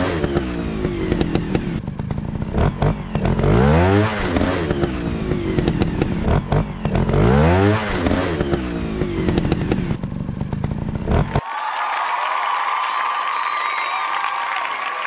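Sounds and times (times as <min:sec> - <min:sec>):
dirt bike engine revving: 0:00.0 - 0:11.4.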